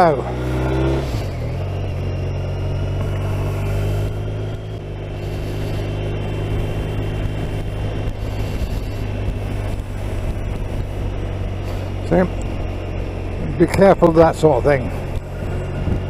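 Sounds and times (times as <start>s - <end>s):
motorcycle engine running: 0.0s - 16.0s
road noise: 0.0s - 16.0s
wind noise: 3.0s - 12.7s, 14.6s - 16.0s.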